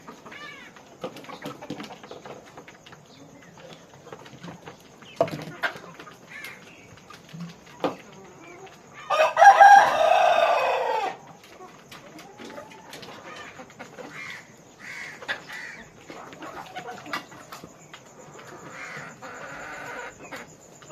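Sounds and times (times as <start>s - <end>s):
chickens clucking: 0.0s - 20.9s
rooster crowing: 9.0s - 11.3s.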